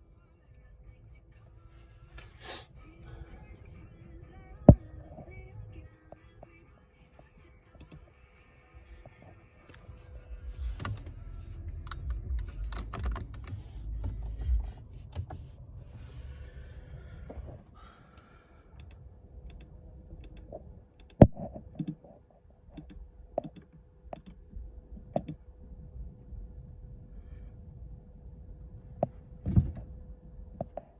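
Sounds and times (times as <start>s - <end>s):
low rumble: 0.0s - 21.7s, 24.3s - 30.9s
faint steady hum: 0.0s - 30.9s
irregular sharp clicks and taps: 22.7s - 24.4s.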